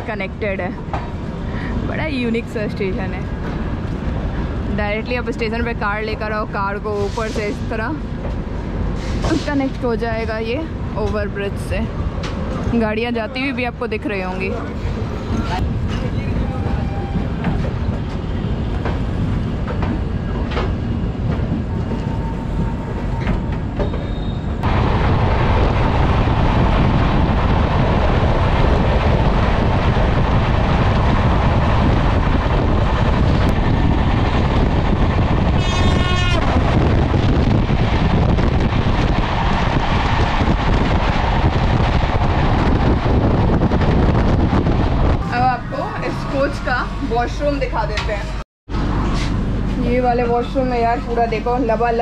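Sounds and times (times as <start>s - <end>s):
train clanks: 0.0s - 13.3s, 14.0s - 45.2s, 46.0s - 52.0s
rush of train wheels and wind: 0.0s - 52.0s
train horn blast: 35.6s - 36.5s.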